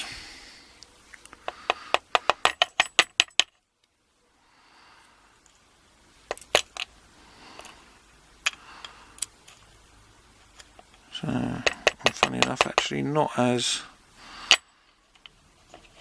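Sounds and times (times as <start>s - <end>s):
small metal parts clicking: 6.3s - 6.9s.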